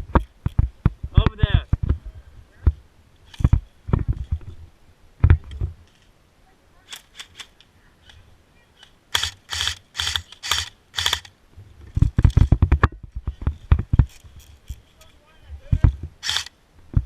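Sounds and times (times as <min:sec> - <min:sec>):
airsoft gun rapid shots: 0:09.2 - 0:11.3, 0:16.2 - 0:16.5.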